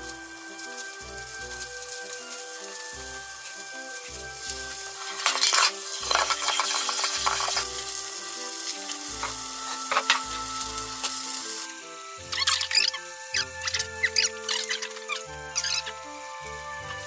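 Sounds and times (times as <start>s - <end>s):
patties sizzling in frying pan: 0.0s - 17.0s
metal spatula scraping pan: 4.5s - 7.8s.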